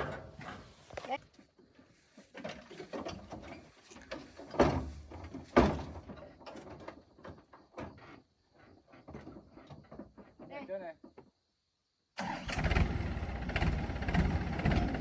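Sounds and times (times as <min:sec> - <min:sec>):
short knocks and clanks: 0:00.0 - 0:00.8.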